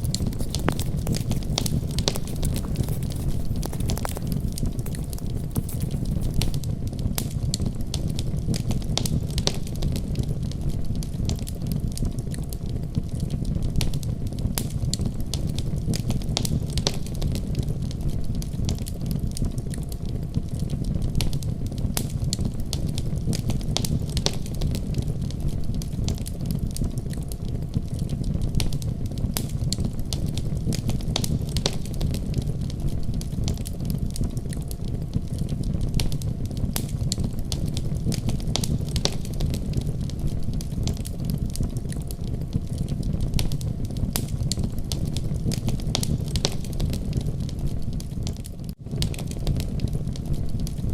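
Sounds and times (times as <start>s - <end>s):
wood fire crackling: 0.0s - 6.6s, 28.6s - 50.9s.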